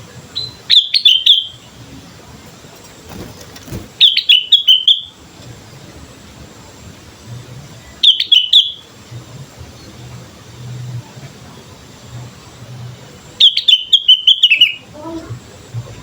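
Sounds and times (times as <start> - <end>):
faint steady hum: 0.0 - 16.0
bird chirping: 0.4 - 1.9, 3.1 - 5.2, 7.8 - 8.9, 13.4 - 14.9.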